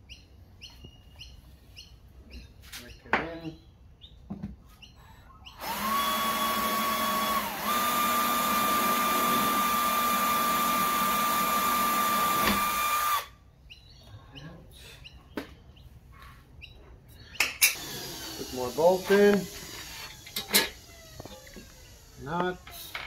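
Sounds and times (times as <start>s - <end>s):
power drill whining: 5.6s - 13.3s, 17.7s - 23.0s.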